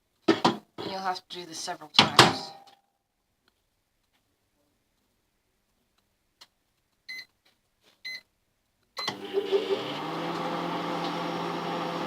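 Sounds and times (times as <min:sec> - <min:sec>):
microwave humming: 0:09.1 - 0:12.0.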